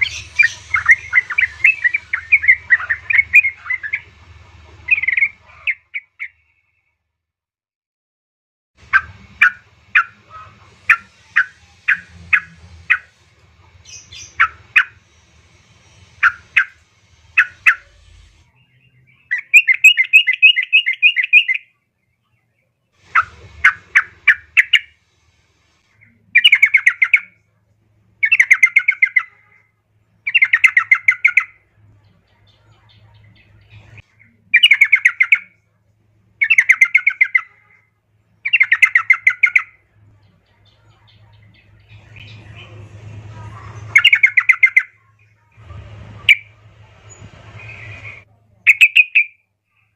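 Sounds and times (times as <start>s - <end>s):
bird rapid chattering: 0.0s - 4.1s, 4.8s - 6.3s, 8.8s - 15.0s, 16.2s - 18.0s, 19.3s - 21.6s, 23.1s - 25.0s, 26.4s - 27.3s, 28.2s - 29.4s, 30.3s - 31.6s, 32.6s - 35.5s, 36.4s - 37.7s, 38.4s - 39.8s, 43.6s - 45.0s, 47.1s - 49.4s
bird calling sharp chips: 47.7s - 49.4s.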